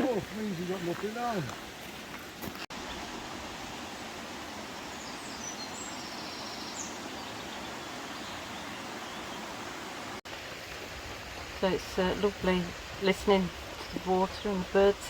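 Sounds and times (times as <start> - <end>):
water rushing in a stream: 0.0 - 15.0.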